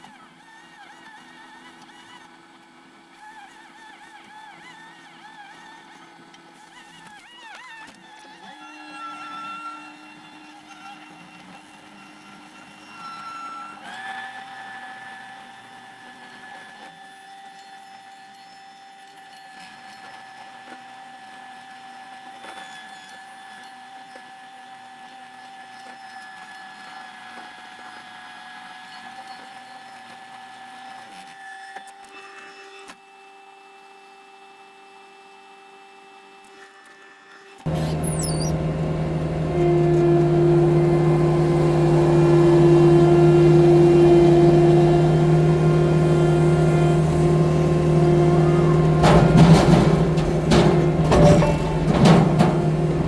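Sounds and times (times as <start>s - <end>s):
loader engine and hydraulics whining: 37.7s - 53.0s.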